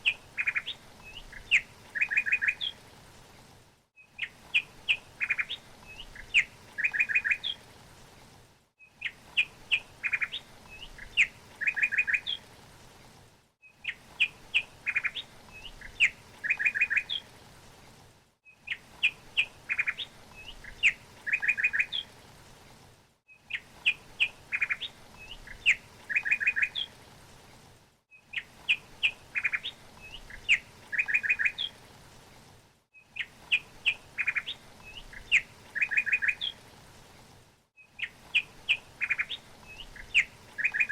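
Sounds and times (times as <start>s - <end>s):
small songbird chirping: 0.0s - 2.8s, 4.0s - 7.6s, 8.8s - 12.4s, 13.6s - 17.3s, 18.4s - 22.1s, 23.3s - 26.9s, 28.1s - 31.8s, 33.0s - 36.6s, 37.8s - 40.9s.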